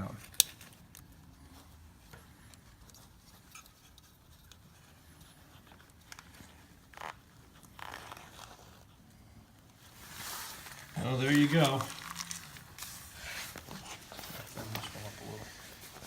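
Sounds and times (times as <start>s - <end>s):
short rustle: 9.8s - 16.0s.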